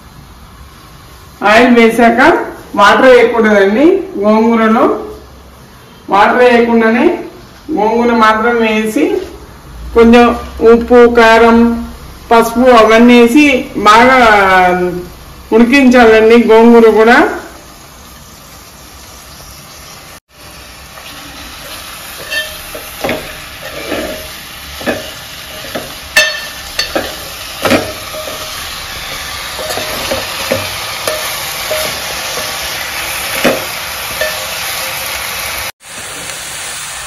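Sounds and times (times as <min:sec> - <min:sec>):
leaves sizzling in oil: 0:11.8 - 0:37.0
metal spoon scraping a pot: 0:21.6 - 0:32.7.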